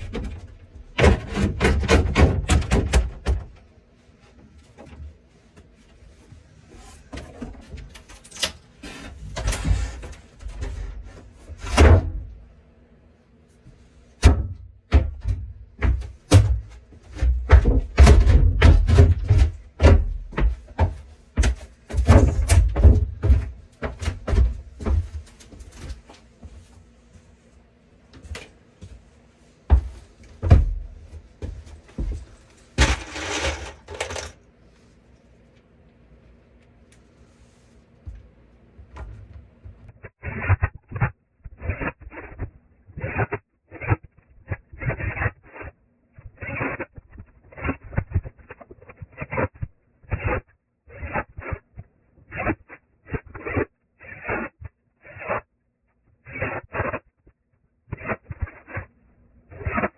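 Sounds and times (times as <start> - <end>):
carpentry knocks and thumps: 0.0 - 3.6, 14.2 - 25.3, 29.7 - 34.4
noisy scraping: 30.9 - 34.4.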